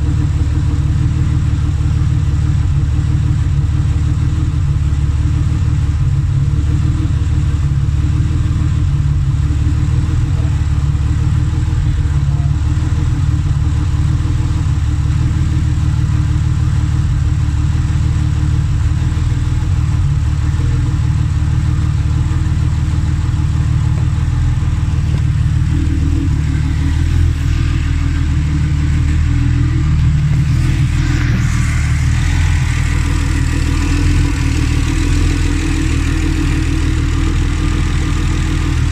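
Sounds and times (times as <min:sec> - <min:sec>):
car engine idling: 0:00.0 - 0:38.9
engine hiss: 0:22.4 - 0:38.9.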